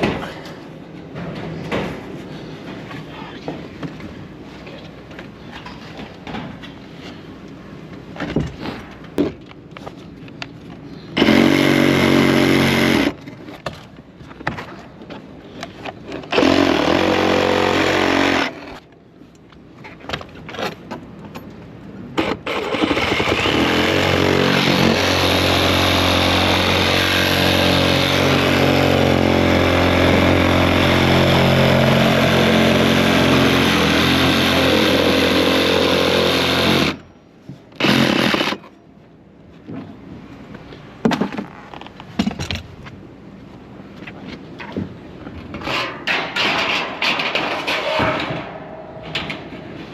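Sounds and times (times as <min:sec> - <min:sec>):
small engine revving: 0:22.4 - 0:37.0.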